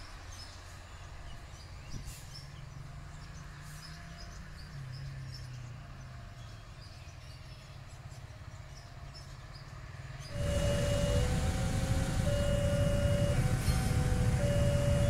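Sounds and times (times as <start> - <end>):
faint low engine rumble: 0.0 - 15.0
birds chirping: 10.2 - 15.0
oncoming train rumble: 10.2 - 15.0
held musical notes: 10.3 - 15.0.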